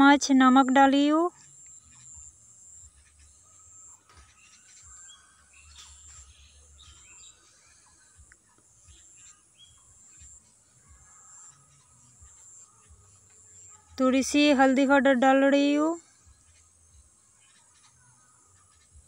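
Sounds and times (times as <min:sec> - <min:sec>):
bird chirps: 0:00.4 - 0:19.0.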